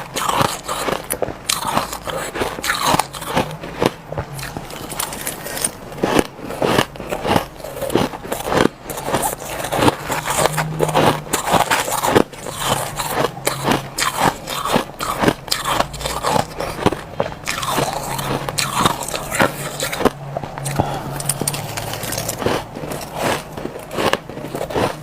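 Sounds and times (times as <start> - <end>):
person chewing crushed ice: 0.0 - 25.0.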